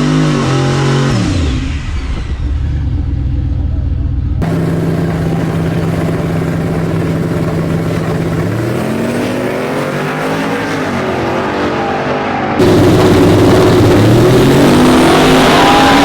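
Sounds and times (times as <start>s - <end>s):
truck engine revving: 4.4s - 16.0s.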